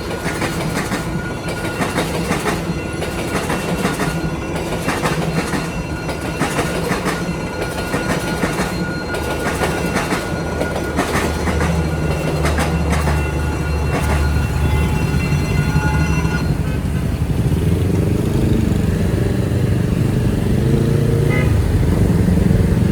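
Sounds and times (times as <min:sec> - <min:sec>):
steady high tone: 0:00.0 - 0:16.8
train wheels clicking over rails: 0:00.0 - 0:19.7
motorbike engines running: 0:13.9 - 0:22.9.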